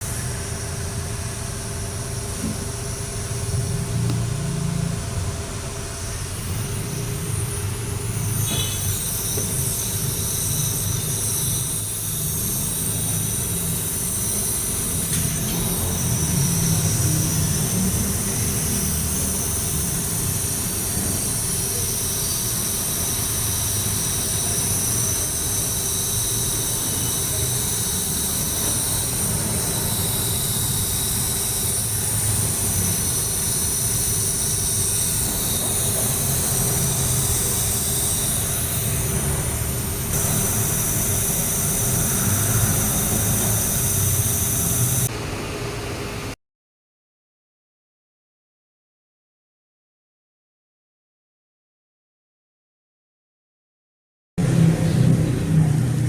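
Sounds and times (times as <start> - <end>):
drive belt squealing: 6.1 - 45.1.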